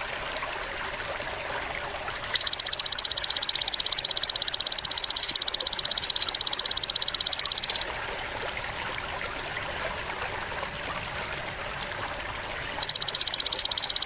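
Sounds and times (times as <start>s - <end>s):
grasshopper buzzing trill: 2.3s - 7.8s, 12.8s - 14.0s.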